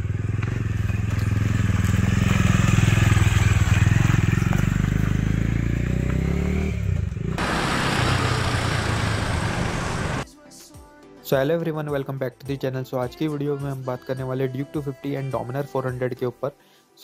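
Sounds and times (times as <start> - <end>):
motorcycle engine running: 0.0 - 10.2
noisier motorcycle engine: 0.0 - 10.2.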